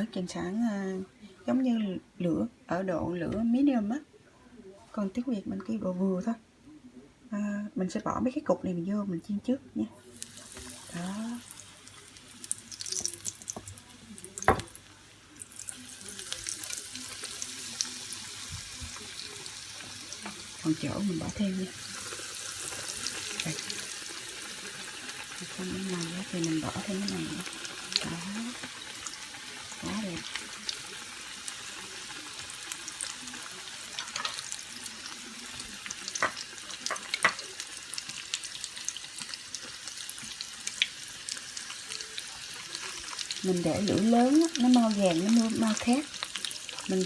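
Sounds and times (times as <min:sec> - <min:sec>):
food deep-frying in oil: 0:10.0 - 0:47.0.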